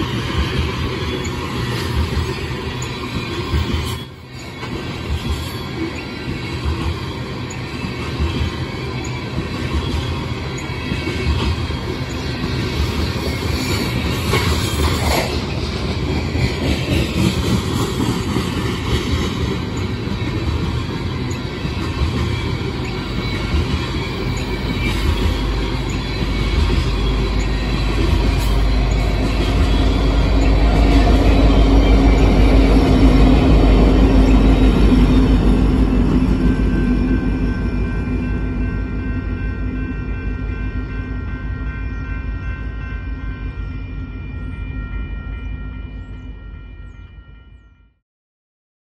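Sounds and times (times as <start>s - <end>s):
train wheels rumbling and clattering: 0.0s - 42.9s.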